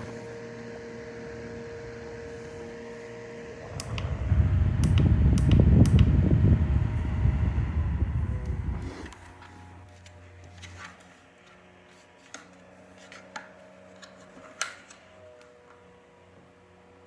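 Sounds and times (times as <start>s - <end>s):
fan rush of air: 0.0s - 9.9s
faint steady hum: 0.0s - 10.7s.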